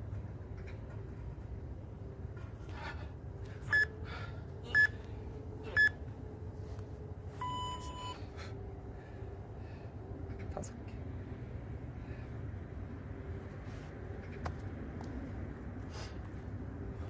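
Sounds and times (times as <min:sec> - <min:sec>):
longer lower-pitched beep: 0:07.4 - 0:08.2.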